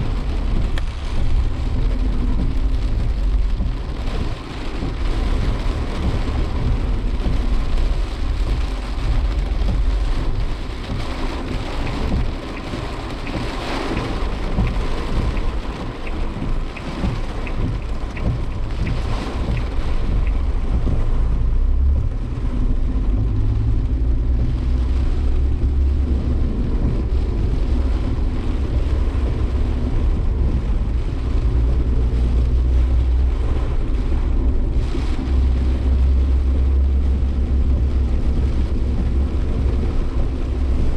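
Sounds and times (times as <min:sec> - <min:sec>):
engine and road rumble: 0:00.0 - 0:40.9
rain beating on car body: 0:00.0 - 0:40.9.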